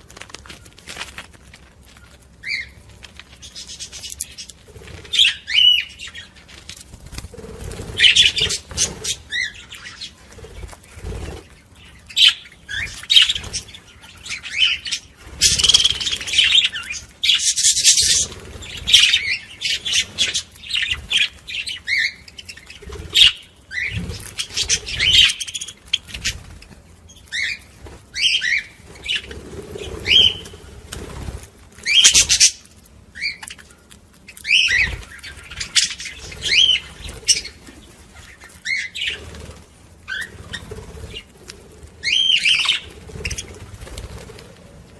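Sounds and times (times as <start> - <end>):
budgerigars chattering: 7.3 - 26.5, 34.4 - 37.6, 42.0 - 43.6.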